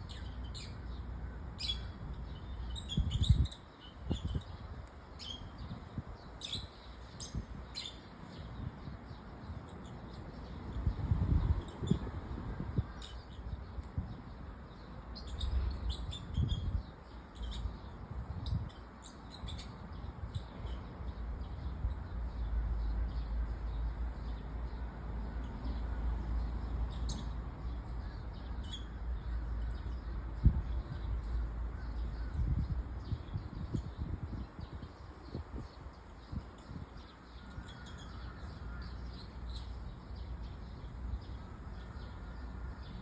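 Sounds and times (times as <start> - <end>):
birds chirping: 0.0 - 43.0
wind buffeting microphone: 1.6 - 22.5, 28.4 - 38.9.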